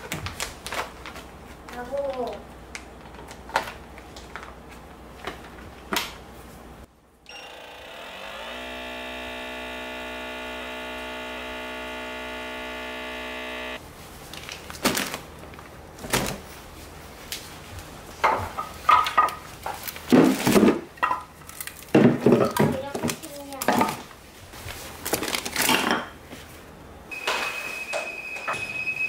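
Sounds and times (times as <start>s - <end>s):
small electric motor humming: 7.3s - 13.8s.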